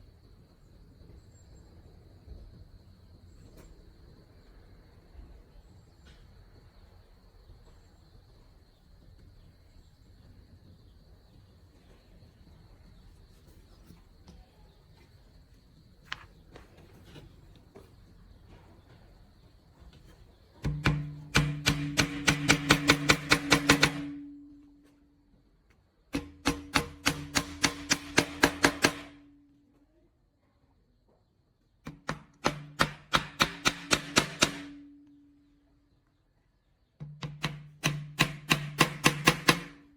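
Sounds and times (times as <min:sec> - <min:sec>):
hammer striking metal: 0:20.6 - 0:24.3, 0:26.2 - 0:29.2, 0:31.9 - 0:34.9, 0:37.0 - 0:39.8.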